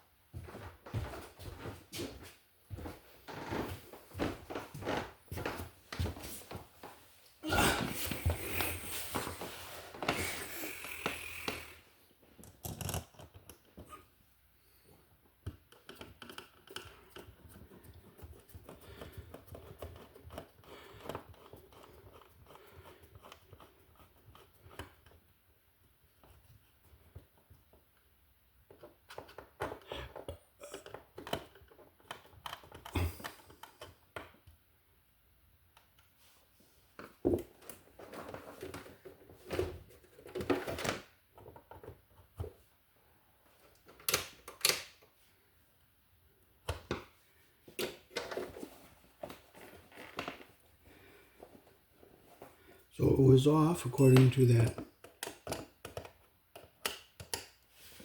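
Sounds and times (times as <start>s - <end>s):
clicks and taps of hand work: 54.7s - 57.6s.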